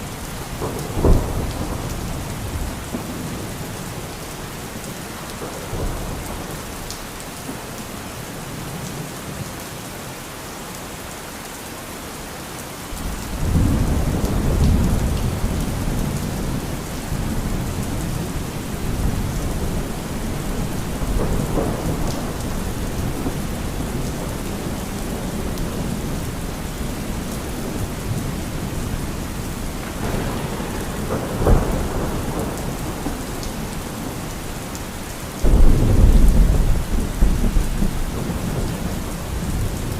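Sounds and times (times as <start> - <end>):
thunder rumbling: 0.0 - 4.2, 13.0 - 39.9
steady rain falling: 0.0 - 39.9.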